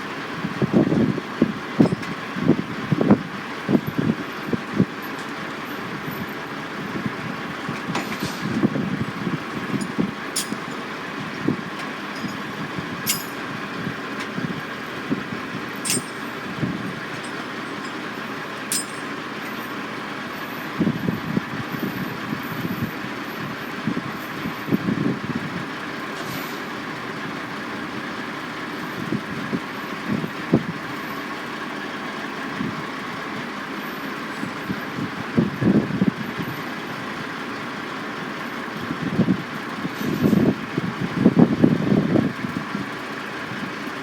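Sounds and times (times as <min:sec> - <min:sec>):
heavy machinery hum: 0:00.0 - 0:25.2.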